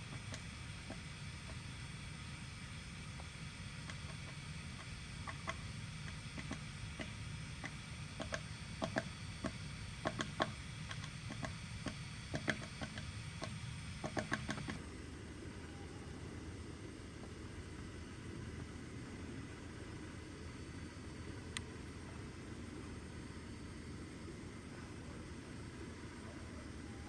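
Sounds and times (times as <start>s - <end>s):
woodpecker tapping on wood: 3.8s - 14.8s.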